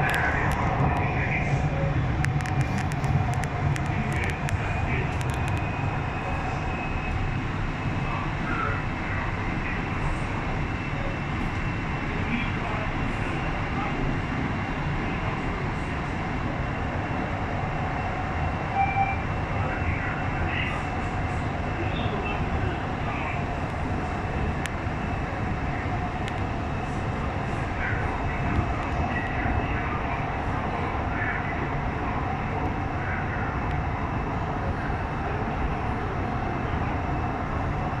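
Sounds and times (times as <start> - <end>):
train wheels rumbling on rail: 0.0 - 38.0
brief tone: 18.7 - 19.2.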